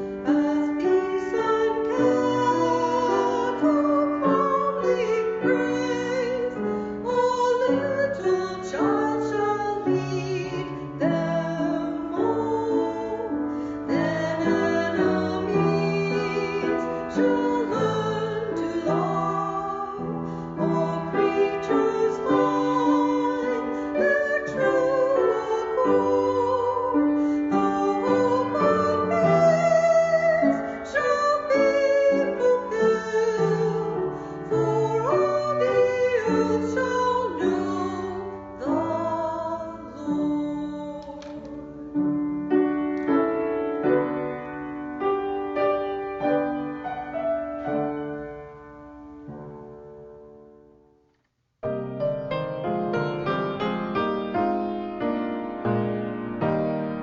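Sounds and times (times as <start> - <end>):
woman singing slow melody: 0.0 - 41.8
piano accompaniment: 0.0 - 57.0.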